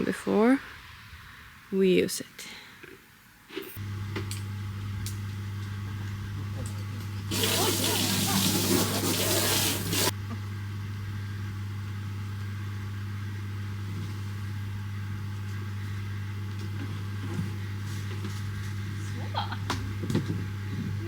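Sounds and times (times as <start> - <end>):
water spraying from hose: 7.3 - 10.2.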